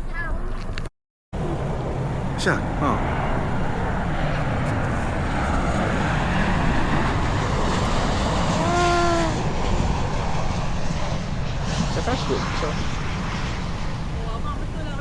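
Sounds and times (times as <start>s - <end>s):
airliner engines rumbling overhead: 1.4s - 15.0s
short rising and falling call: 6.8s - 11.4s.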